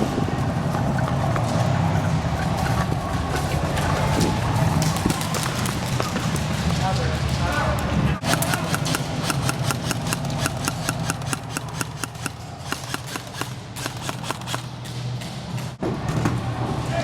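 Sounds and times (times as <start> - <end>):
airsoft guns firing: 8.2 - 15.1.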